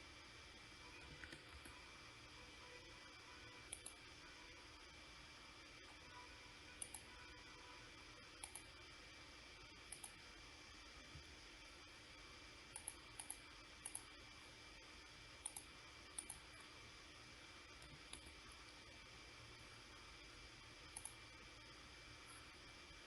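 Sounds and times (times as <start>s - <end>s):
faint hiss and hum: 0.0s - 23.0s
computer mouse clicking: 1.0s - 1.8s, 3.7s - 4.0s, 6.8s - 7.1s, 8.4s - 8.7s, 9.9s - 10.2s, 12.7s - 14.1s, 15.4s - 16.5s, 17.8s - 18.4s, 20.9s - 21.2s.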